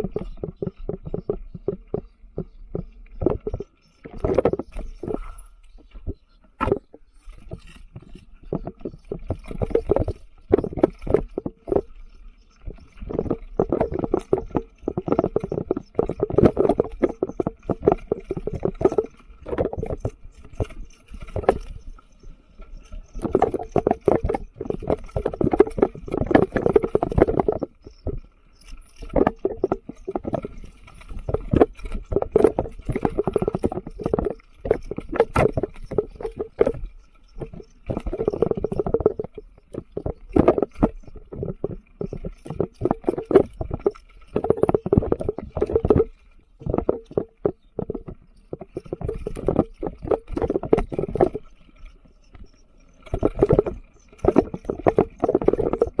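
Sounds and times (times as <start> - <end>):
bike frame rattling: 12.6 - 51.5.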